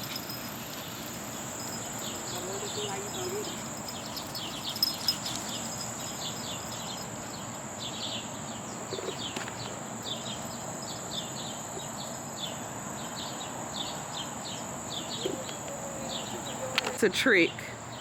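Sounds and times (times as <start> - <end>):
birds chirping: 0.0 - 18.0
high insect-like whine: 0.0 - 18.0.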